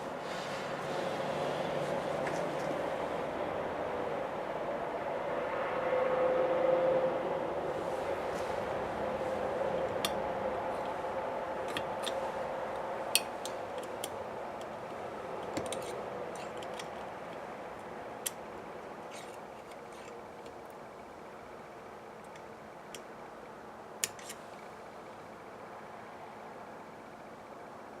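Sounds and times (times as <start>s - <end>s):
steady hum: 0.0s - 28.0s
metallic clicks of small parts: 15.4s - 17.4s, 24.0s - 24.4s.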